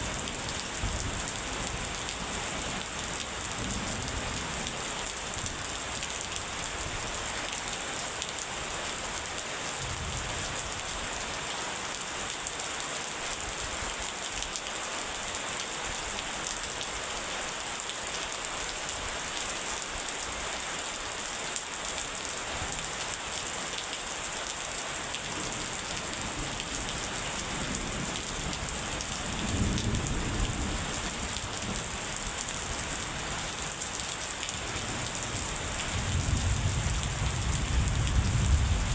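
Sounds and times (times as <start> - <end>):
rain pattering: 0.0 - 38.9
distant thunder rumble: 36.0 - 38.9.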